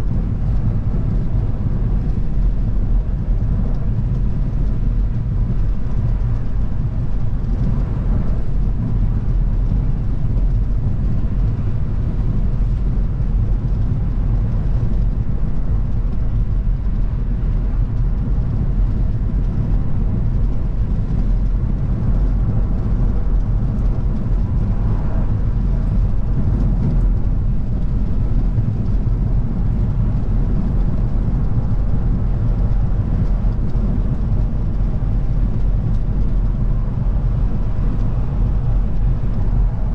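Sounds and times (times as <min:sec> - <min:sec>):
car engine: 0:00.0 - 0:39.9
road noise: 0:00.0 - 0:39.9.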